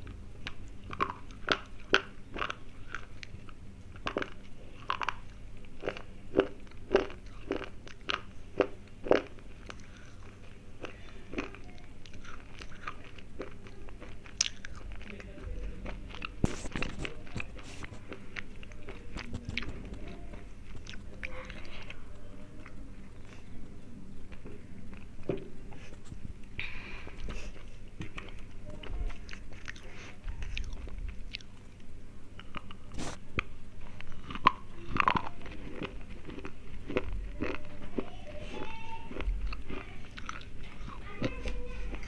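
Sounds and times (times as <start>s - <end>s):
slate pencils crunching when chewed: 0.0s - 23.5s, 27.1s - 42.0s.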